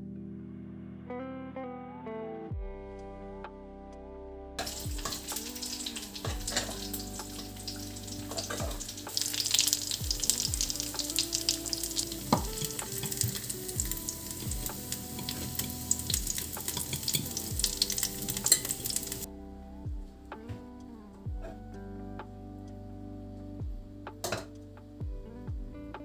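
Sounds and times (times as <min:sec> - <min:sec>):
food sizzling in a frying pan: 0:04.6 - 0:19.3.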